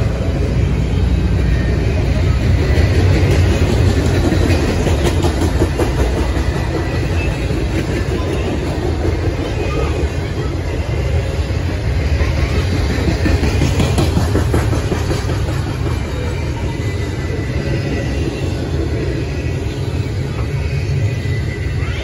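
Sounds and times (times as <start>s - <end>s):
clickety-clack over rail joints: 0.0s - 20.9s
freight cars rumbling on rails: 0.0s - 22.0s.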